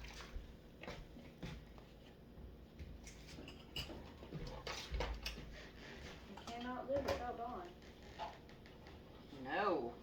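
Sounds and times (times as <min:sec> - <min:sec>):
dishes clinking while washed: 0:03.0 - 0:07.4.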